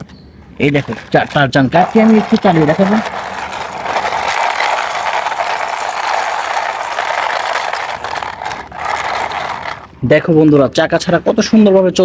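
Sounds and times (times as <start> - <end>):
toy car wheels rattling: 0.6 - 10.0.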